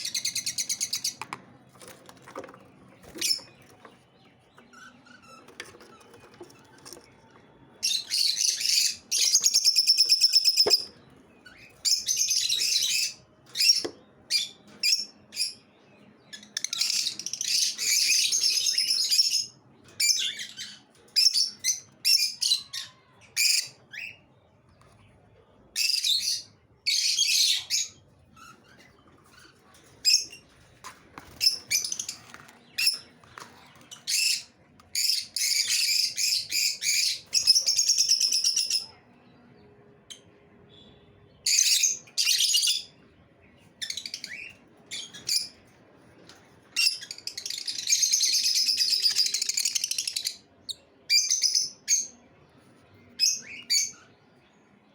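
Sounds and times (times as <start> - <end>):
lovebirds chirping and chattering: 0.0 - 54.9.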